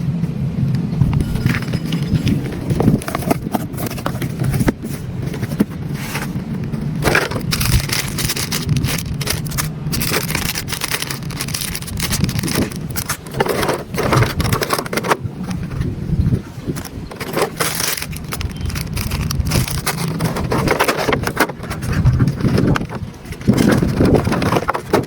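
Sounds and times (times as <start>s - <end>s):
crunching and scraping: 1.0s - 25.0s
toy excavator motors and gears: 6.1s - 15.6s, 16.7s - 25.0s.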